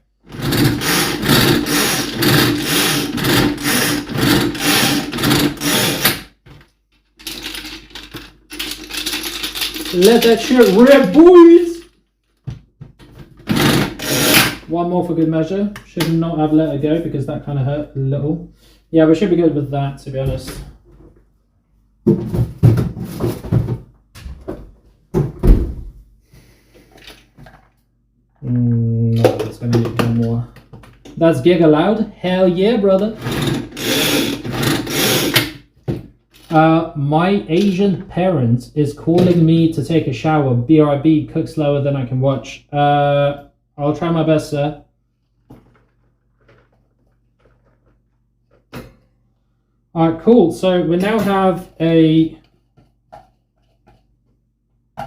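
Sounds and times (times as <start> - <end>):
food processor grinding whir: 0.3 - 6.2, 13.5 - 14.6, 33.2 - 35.5
food pieces rattling: 7.2 - 11.2, 45.5 - 48.2.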